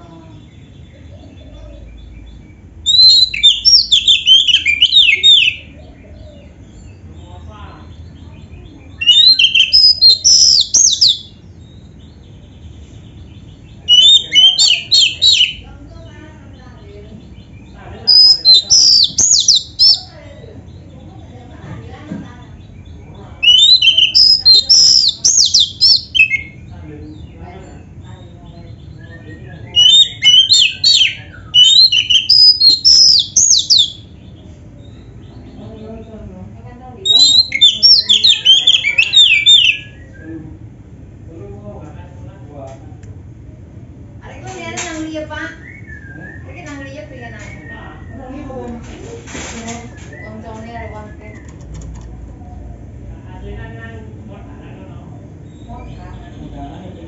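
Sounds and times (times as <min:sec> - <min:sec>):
bird singing whistled phrases: 0:02.8 - 0:05.8, 0:09.0 - 0:11.4, 0:13.8 - 0:15.6, 0:18.1 - 0:20.1, 0:23.4 - 0:26.6, 0:28.9 - 0:34.1, 0:37.1 - 0:40.4, 0:45.5 - 0:46.6.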